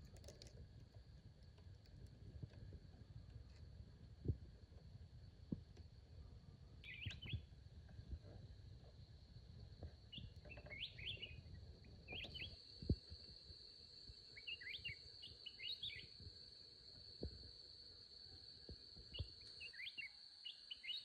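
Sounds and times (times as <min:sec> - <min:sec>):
small birds chirping: 0:06.8 - 0:07.5, 0:10.1 - 0:12.7, 0:14.2 - 0:16.2, 0:19.1 - 0:21.0.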